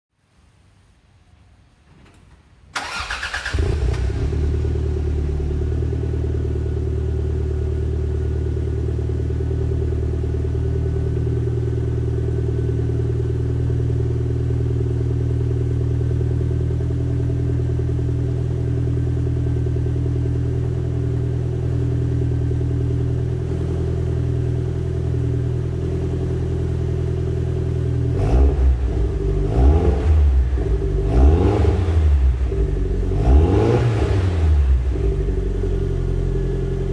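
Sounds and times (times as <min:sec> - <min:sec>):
car engine idling: 0:02.8 - 0:36.9
car engine starting: 0:02.8 - 0:36.9
engine revving in blips: 0:28.1 - 0:35.2.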